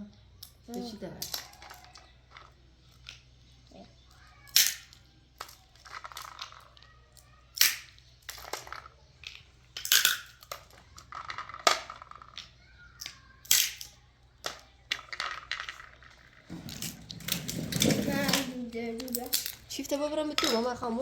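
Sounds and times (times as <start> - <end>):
sharp snaps and cracks: 4.1 - 16.2, 16.8 - 19.7.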